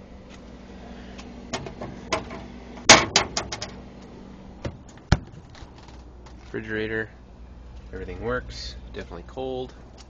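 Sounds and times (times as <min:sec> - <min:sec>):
refrigerator door clicks and knocks: 0:01.5 - 0:03.8, 0:04.6 - 0:05.5.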